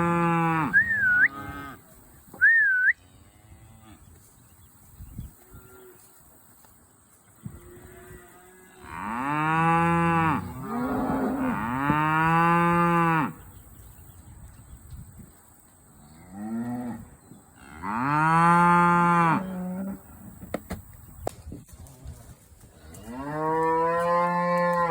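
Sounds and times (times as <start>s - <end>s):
cattle mooing: 8.7s - 13.3s.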